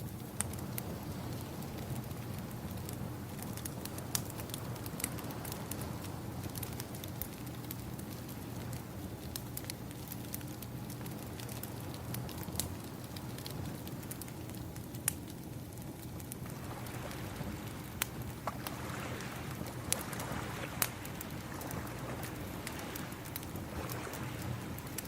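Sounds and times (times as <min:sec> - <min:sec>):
wood fire crackling: 0:00.0 - 0:25.0
ocean waves rushing: 0:18.6 - 0:24.7.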